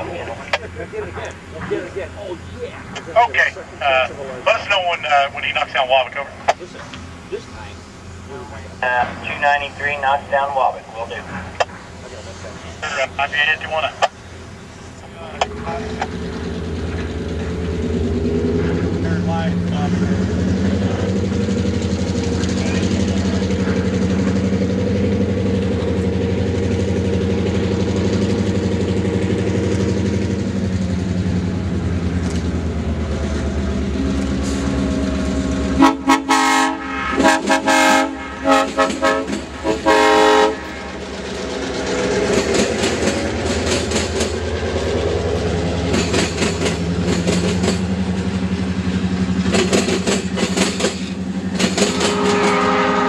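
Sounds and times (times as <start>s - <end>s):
diesel locomotive engine running: 0.0s - 53.0s
train rumbling and clattering past: 0.0s - 53.0s
locomotive air horn blasts: 34.0s - 40.9s, 51.8s - 53.0s.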